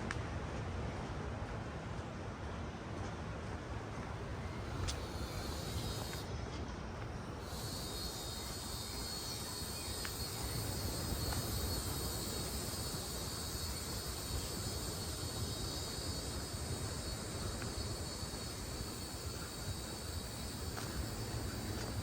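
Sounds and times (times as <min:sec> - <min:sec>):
high-pitched insect buzz: 0:04.5 - 0:06.3, 0:07.4 - 0:22.0.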